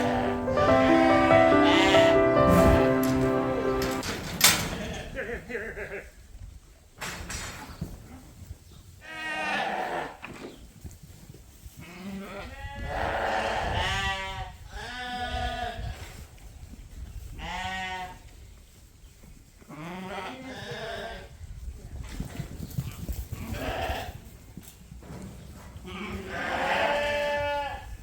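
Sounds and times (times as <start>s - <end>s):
lambs bleating: 0.0s - 2.2s, 25.9s - 27.8s.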